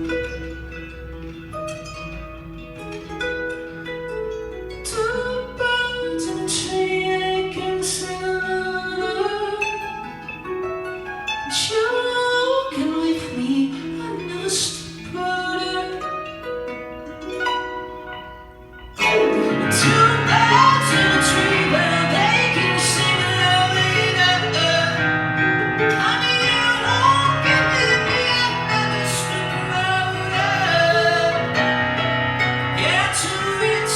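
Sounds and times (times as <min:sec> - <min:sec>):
guitar: 0:00.0 - 0:33.9
instrumental accompaniment: 0:12.8 - 0:33.9
man singing: 0:19.0 - 0:33.9.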